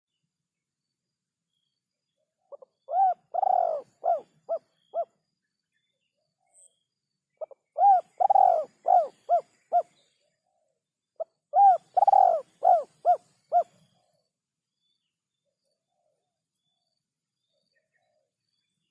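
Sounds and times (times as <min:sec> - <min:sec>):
dove cooing: 0:02.5 - 0:05.2, 0:07.4 - 0:10.0, 0:11.2 - 0:14.0.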